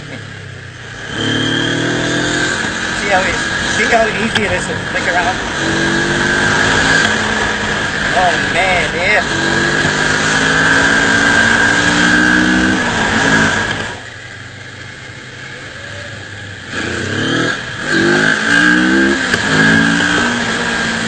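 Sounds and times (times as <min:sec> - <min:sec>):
motorcycle engine accelerating: 0:00.0 - 0:21.0
wind rushing: 0:01.2 - 0:14.0.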